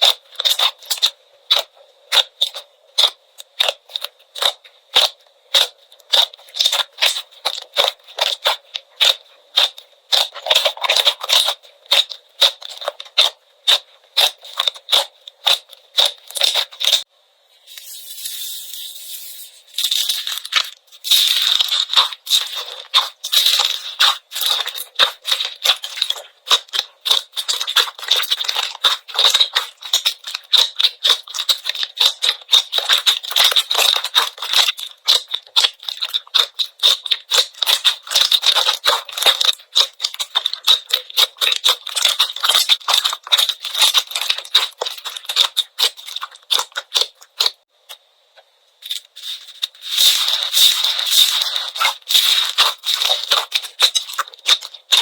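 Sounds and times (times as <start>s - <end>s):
slime crackling and popping: 0.0s - 17.1s, 19.8s - 48.0s, 48.8s - 55.0s.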